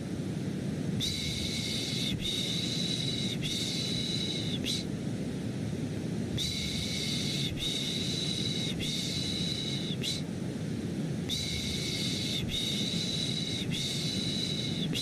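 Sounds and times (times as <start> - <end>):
white noise: 0.0 - 15.0
person shushing: 6.4 - 10.3, 11.3 - 15.0.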